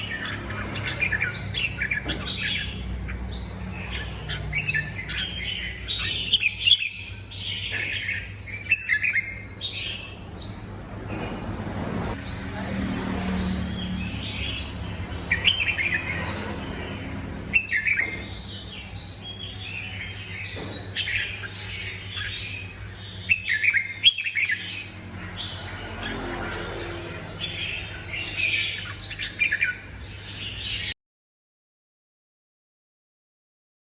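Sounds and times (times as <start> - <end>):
songbird singing: 0.0 - 31.0.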